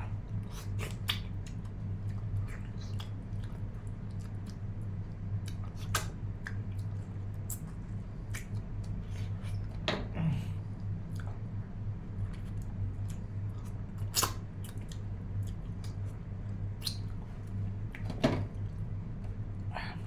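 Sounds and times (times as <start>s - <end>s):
low electrical hum: 0.0s - 20.0s
chewing with wet clicks: 0.4s - 9.6s, 10.8s - 11.6s, 12.2s - 18.0s.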